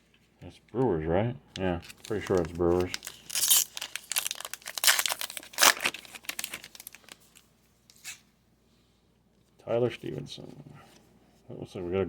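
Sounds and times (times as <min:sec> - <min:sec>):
foil wrapper crinkling and tearing: 0:01.6 - 0:08.2.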